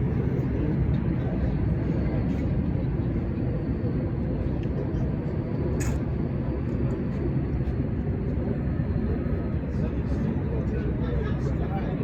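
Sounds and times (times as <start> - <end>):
sharp click: 5.8 - 6.0.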